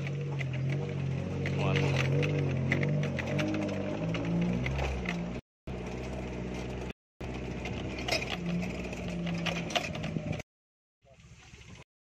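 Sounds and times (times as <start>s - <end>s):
off-road vehicle engine running: 0.0s - 10.5s.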